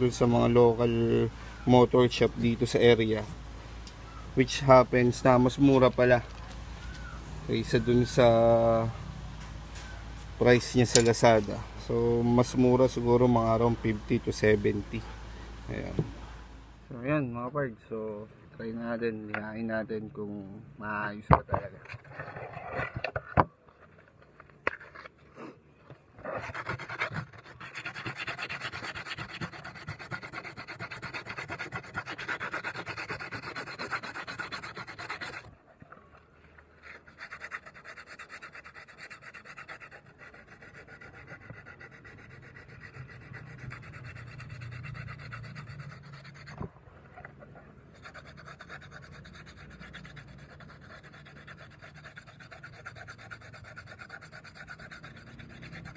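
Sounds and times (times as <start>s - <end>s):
sandpaper rasping: 26.3s - 35.5s, 36.7s - 46.6s, 47.8s - 55.9s.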